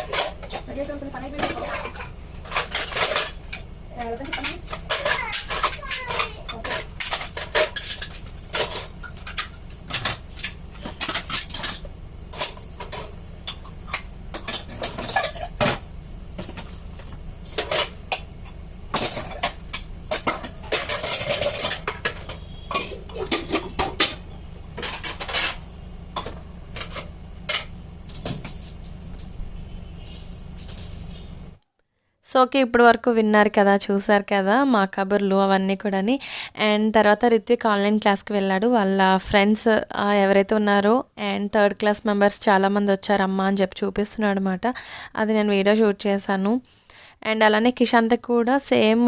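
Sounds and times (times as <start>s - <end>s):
dishes and utensils clinking: 0.0s - 15.8s, 16.4s - 25.6s.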